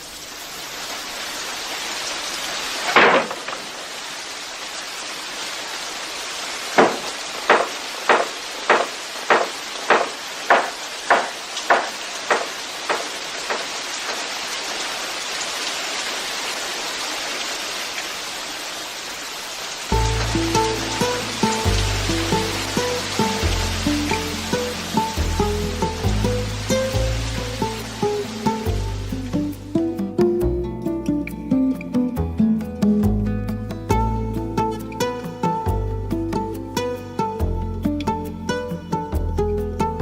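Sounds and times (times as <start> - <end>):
rain-like hiss: 0.0 - 40.0
knocks: 2.9 - 3.6, 6.8 - 14.3.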